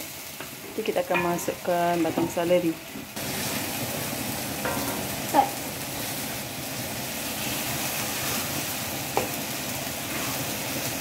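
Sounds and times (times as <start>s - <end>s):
food sizzling in a wok: 0.0s - 11.0s
wooden spatula scraping a wok: 7.2s - 9.4s, 10.0s - 10.9s.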